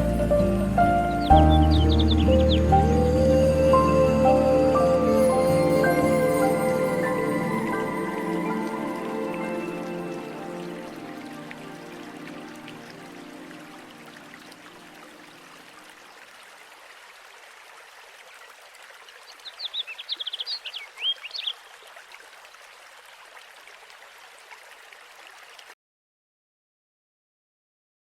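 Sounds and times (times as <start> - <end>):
flowing water: 0.0 - 25.8
small bird twittering: 19.4 - 21.6.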